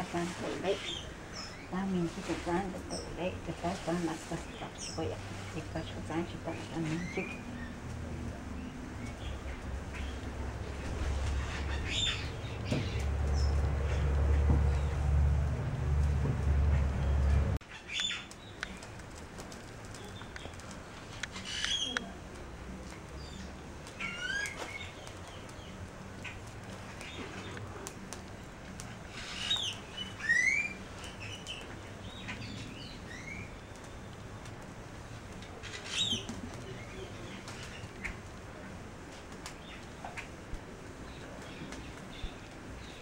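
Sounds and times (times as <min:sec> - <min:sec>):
small birds chirping: 0:00.0 - 0:15.0, 0:17.0 - 0:38.8, 0:39.4 - 0:43.0
loud low rumble: 0:13.0 - 0:17.6.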